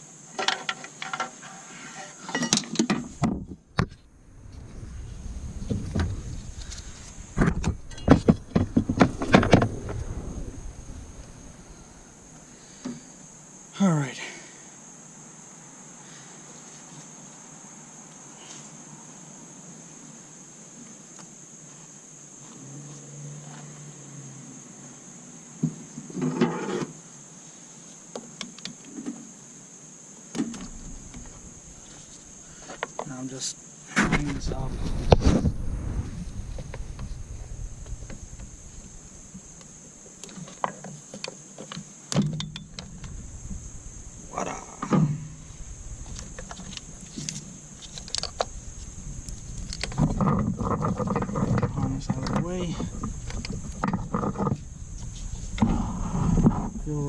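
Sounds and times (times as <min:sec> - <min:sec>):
wiring harness scraping and rattling: 0:46.0 - 0:56.6.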